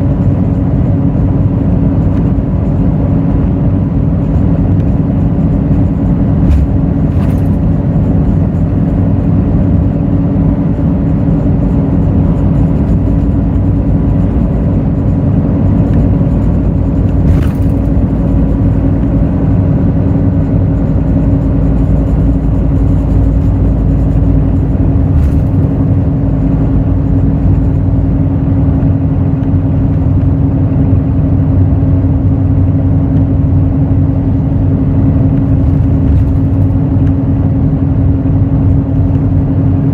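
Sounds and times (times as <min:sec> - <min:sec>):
bus diesel engine running: 0:00.0 - 0:39.9
knocks and rattles: 0:04.2 - 0:28.2, 0:35.3 - 0:37.3.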